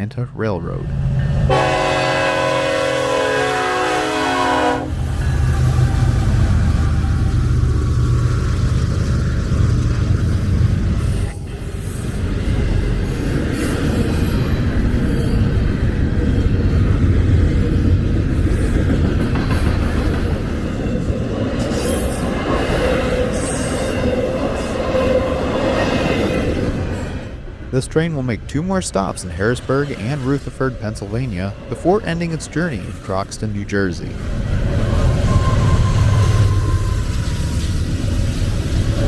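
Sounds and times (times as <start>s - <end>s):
locomotive rumble: 0.0s - 39.0s
train wheels rolling on rails: 0.9s - 39.0s
wheel squeal: 34.7s - 39.0s.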